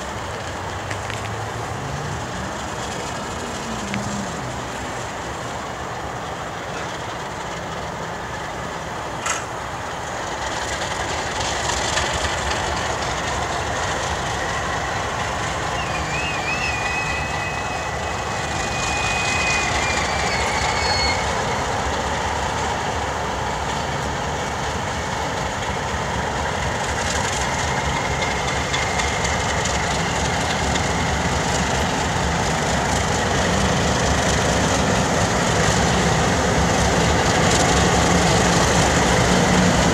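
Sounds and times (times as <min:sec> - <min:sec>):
train rumbling on rails: 0:00.0 - 0:39.9
sharp click: 0:09.2 - 0:09.5
high wavering squeal: 0:14.5 - 0:21.7.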